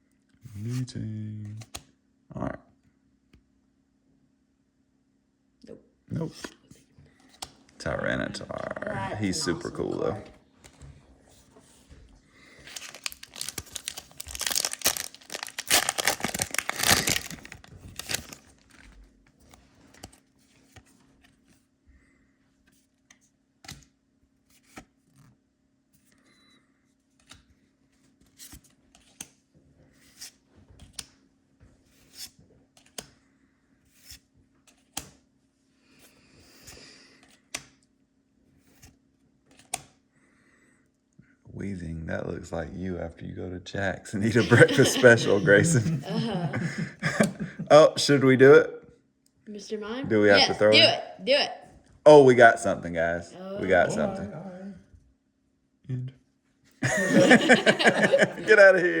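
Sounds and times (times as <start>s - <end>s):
foil pack tearing and crinkling: 12.6s - 18.8s.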